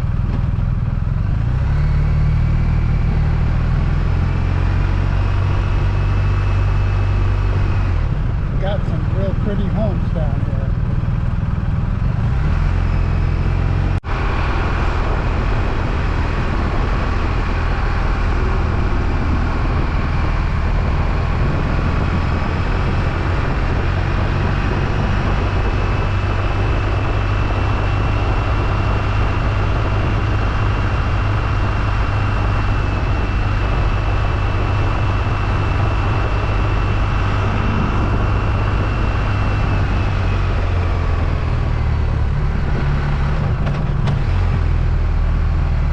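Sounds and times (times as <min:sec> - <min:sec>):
motorcycle engine running: 0:00.0 - 0:45.9
road rumble: 0:00.0 - 0:45.9
thin high whine: 0:35.3 - 0:40.4.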